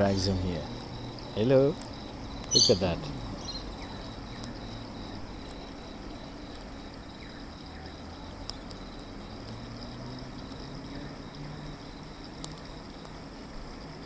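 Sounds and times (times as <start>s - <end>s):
crickets chirring: 0.0s - 14.0s
faint sharp clicks: 4.4s - 4.6s, 12.4s - 13.2s.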